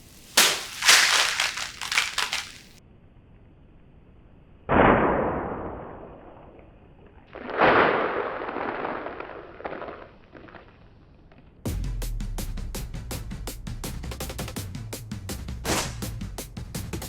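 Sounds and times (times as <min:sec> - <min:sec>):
scattered crackles: 0:00.0 - 0:02.8.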